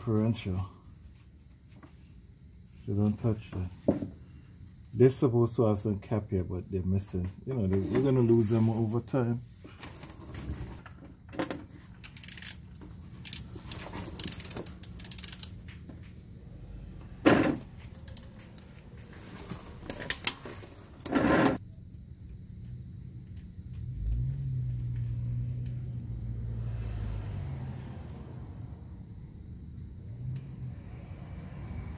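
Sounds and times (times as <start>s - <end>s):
socket wrench clicking: 14.2s - 15.5s
loud short scrapes: 21.0s - 21.6s.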